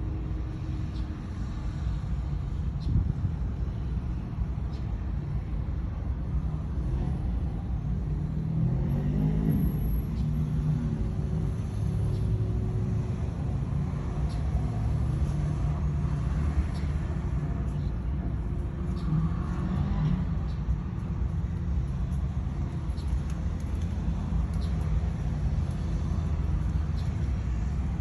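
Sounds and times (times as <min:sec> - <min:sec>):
motor vehicle rumble: 0:00.0 - 0:28.0.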